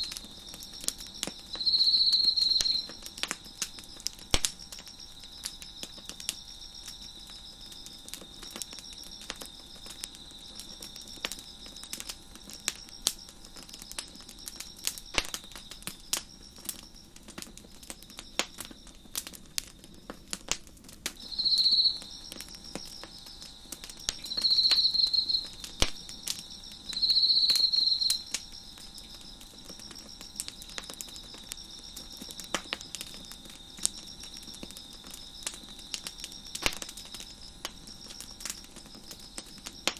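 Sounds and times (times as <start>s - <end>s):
crickets chirping: 0.0s - 39.9s
loud cricket trills: 0.0s - 39.9s
wood fire crackling: 0.0s - 39.9s.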